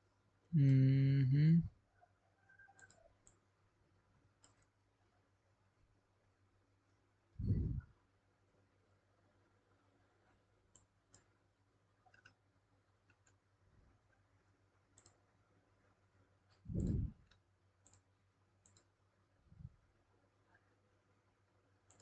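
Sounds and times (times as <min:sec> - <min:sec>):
computer mouse clicks: 0:02.7 - 0:03.4, 0:04.4 - 0:04.8, 0:10.7 - 0:11.4, 0:12.0 - 0:12.4, 0:13.0 - 0:13.4, 0:14.9 - 0:15.3, 0:16.5 - 0:19.0, 0:21.8 - 0:22.0.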